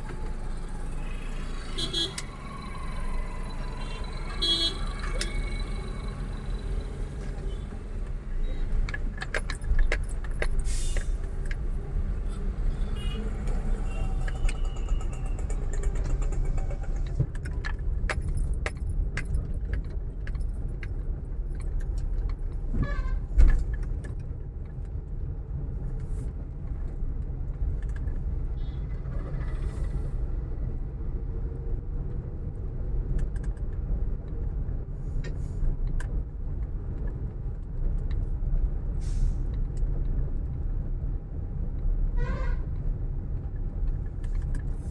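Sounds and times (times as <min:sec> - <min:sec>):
vehicle road rumble: 0:00.0 - 0:44.9.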